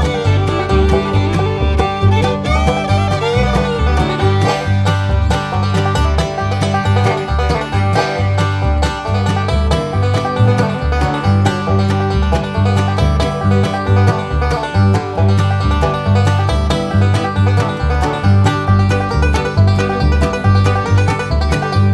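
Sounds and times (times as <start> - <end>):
bluegrass music with banjo and guitar: 0.0 - 21.9.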